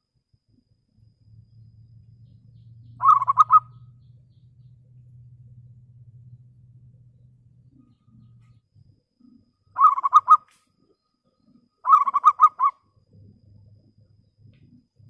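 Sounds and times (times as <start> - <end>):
dove cooing: 3.0 - 3.8, 9.2 - 10.5, 11.5 - 12.8.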